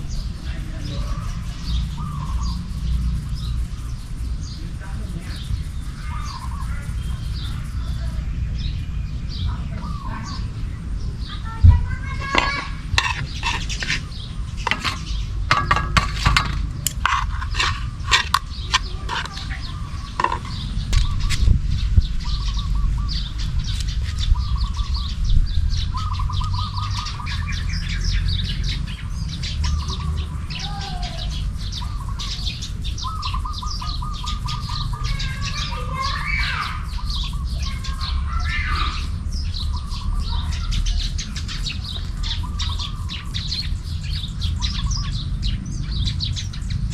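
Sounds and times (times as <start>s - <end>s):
small birds chirping and trilling: 0.0s - 46.9s
sharp clicks or knocks: 14.6s - 19.5s, 20.2s - 21.1s.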